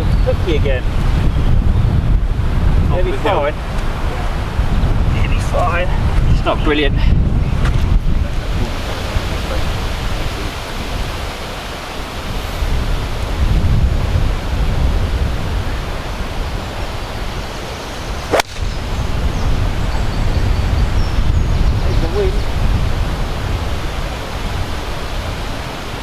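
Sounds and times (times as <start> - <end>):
wind buffeting microphone: 0.0 - 26.0
sharp click: 18.3 - 18.8.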